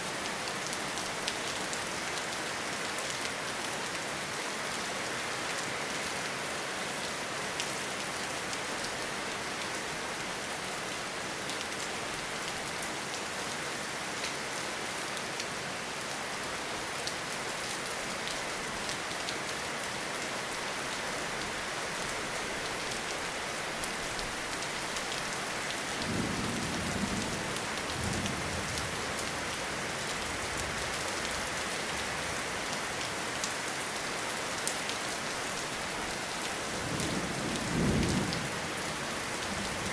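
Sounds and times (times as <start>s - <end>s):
rain falling in forest: 0.0s - 39.9s
low rumble of thunder: 26.0s - 29.3s, 36.8s - 38.8s.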